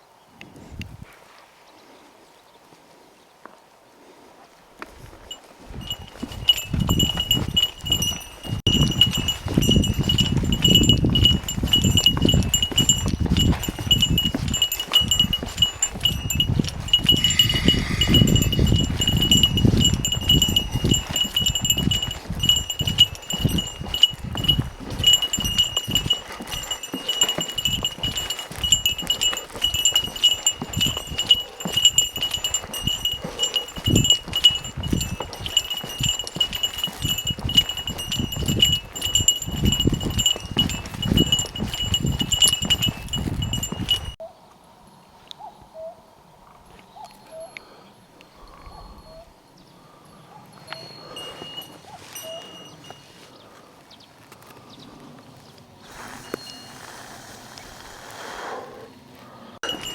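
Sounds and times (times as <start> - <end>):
footsteps on a trail: 4.2 - 44.2, 50.5 - 58.5, 59.2 - 59.9
small metal bell jingling: 5.0 - 44.2, 50.6 - 53.2, 59.6 - 59.9.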